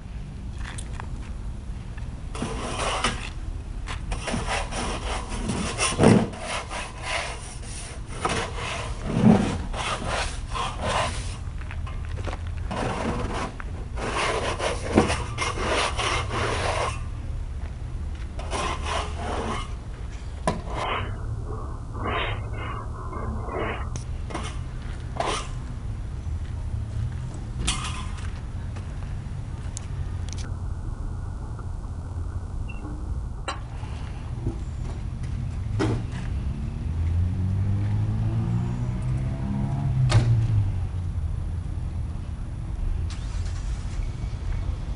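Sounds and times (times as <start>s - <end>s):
rasping scraping strokes: 2.4s - 3.3s, 4.1s - 11.4s, 12.7s - 17.1s, 18.4s - 19.8s, 20.5s - 25.6s
steady low rumble: 19.2s - 27.6s, 28.2s - 35.7s.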